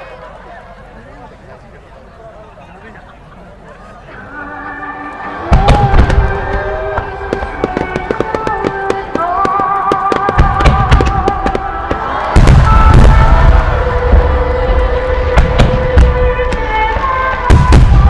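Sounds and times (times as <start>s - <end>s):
fireworks bursts and crackles: 5.4s - 18.0s
heavy low booms: 10.3s - 18.0s.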